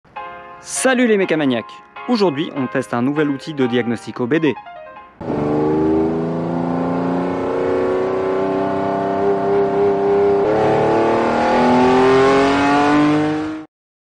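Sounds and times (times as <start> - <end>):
car engine accelerating: 5.2 - 13.7.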